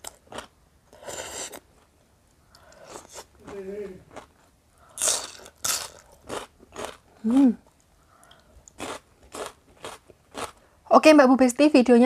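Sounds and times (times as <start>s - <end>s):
crunching bites and chewing: 2.6s - 7.2s, 7.8s - 10.6s
person humming: 7.2s - 7.6s.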